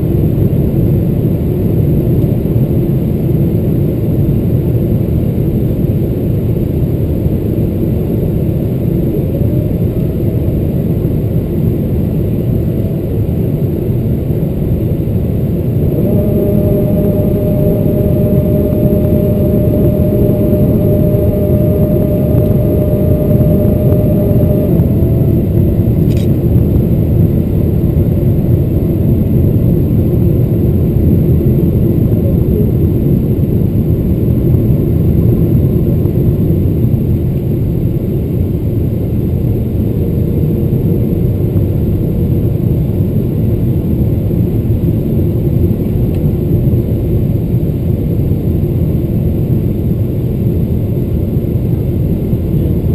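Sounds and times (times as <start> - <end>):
jet engine and airflow rumble: 0.0 - 52.9
whining tone: 15.3 - 28.0.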